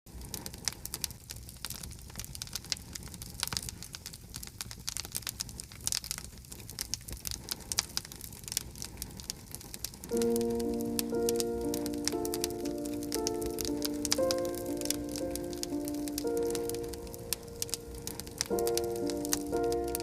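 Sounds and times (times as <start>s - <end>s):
wood popping and snapping: 10.0s - 20.0s.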